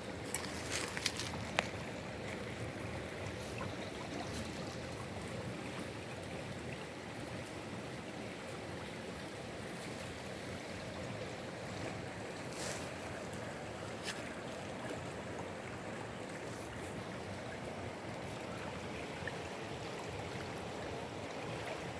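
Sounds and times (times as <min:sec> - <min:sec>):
water flowing over stones: 0:00.0 - 0:21.9.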